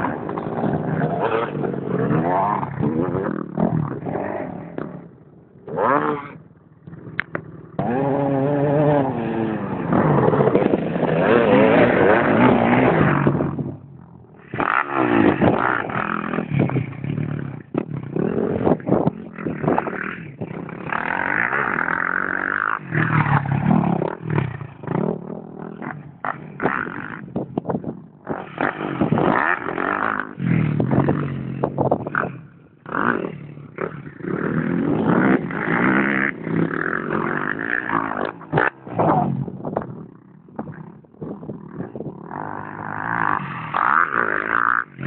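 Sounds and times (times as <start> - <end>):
motocross bike engines revving: 0.0 - 45.0.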